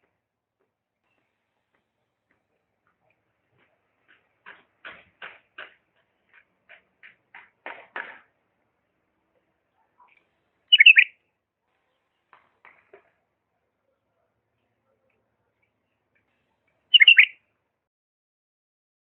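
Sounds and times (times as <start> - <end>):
bulbul calling: 10.0 - 11.2, 16.2 - 17.4.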